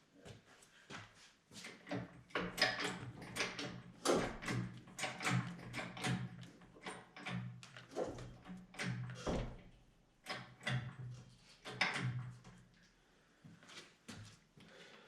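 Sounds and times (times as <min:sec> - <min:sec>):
hoist chain creaking and knocking: 0:01.9 - 0:12.3.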